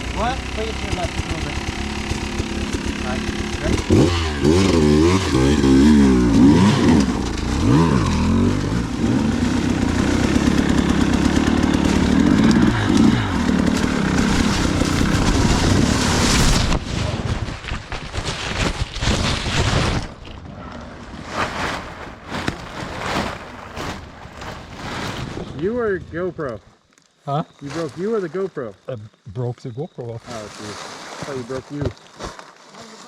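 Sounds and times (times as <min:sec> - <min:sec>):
dirt bike engine revving: 0:00.0 - 0:17.3
knocks and scrapes from a fall: 0:14.6 - 0:20.4.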